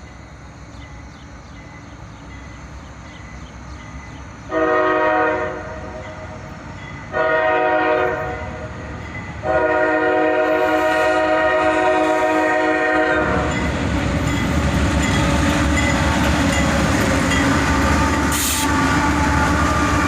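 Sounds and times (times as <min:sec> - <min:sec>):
train rumbling: 0:00.0 - 0:20.0
locomotive air horn blasts: 0:04.5 - 0:06.2, 0:07.1 - 0:08.7, 0:09.4 - 0:13.6, 0:17.6 - 0:20.0.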